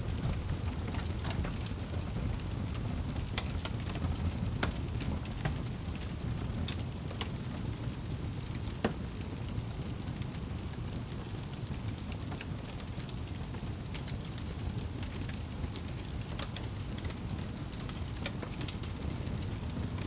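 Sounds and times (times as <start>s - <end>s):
fire popping and snapping: 0.0s - 20.0s
low rumble of burning fire: 0.0s - 20.0s.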